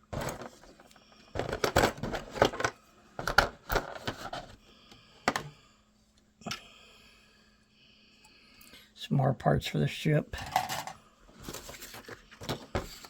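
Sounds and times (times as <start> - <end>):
plastic parts clicking and crackling: 0.1 - 4.6.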